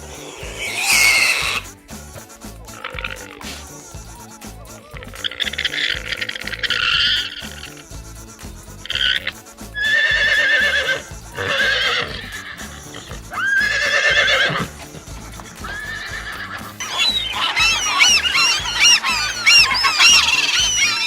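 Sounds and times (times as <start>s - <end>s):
horse whinnying: 0.0s - 1.7s, 9.8s - 21.0s
chorus of high chirping calls: 0.0s - 1.8s, 4.9s - 7.9s, 8.8s - 21.0s
background music: 0.0s - 21.0s.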